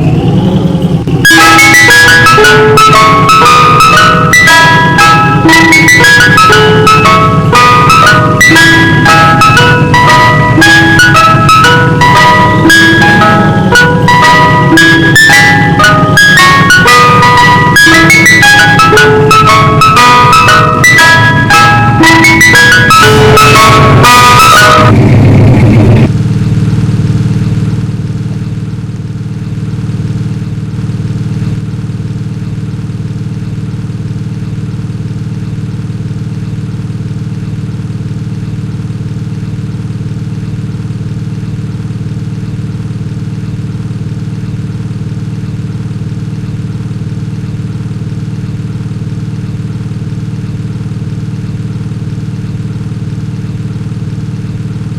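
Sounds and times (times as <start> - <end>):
ice cream truck music: 0.0 - 26.1
truck engine idling: 0.0 - 54.9.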